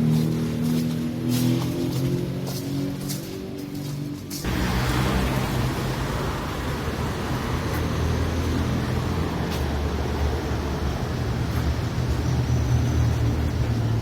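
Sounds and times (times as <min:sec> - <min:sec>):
road and tyre noise: 0:00.0 - 0:14.0
car engine humming: 0:04.4 - 0:14.0.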